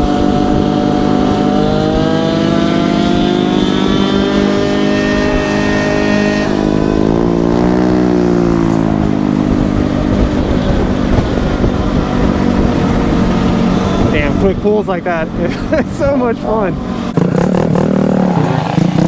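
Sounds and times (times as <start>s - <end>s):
engine revving: 0.0s - 19.0s
scooter engines running: 0.0s - 19.0s.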